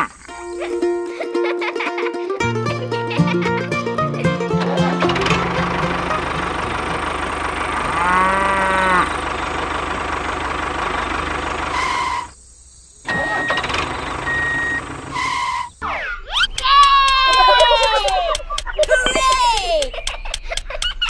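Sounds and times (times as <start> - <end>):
tractor engine running: 2.4 - 12.4, 13.1 - 15.8
moo-like pitched call: 4.6 - 9.4, 11.6 - 12.3.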